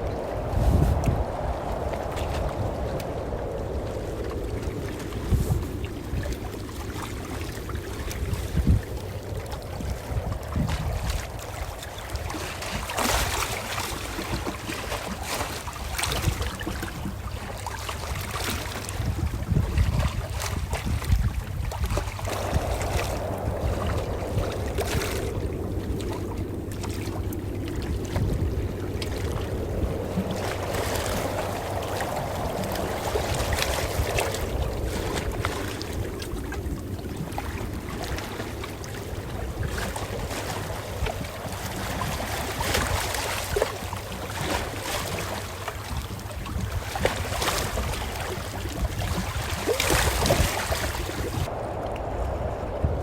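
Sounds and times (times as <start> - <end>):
deep rumble: 0.0 - 14.6, 21.7 - 44.3, 50.8 - 53.0
ocean waves lapping: 0.0 - 53.0.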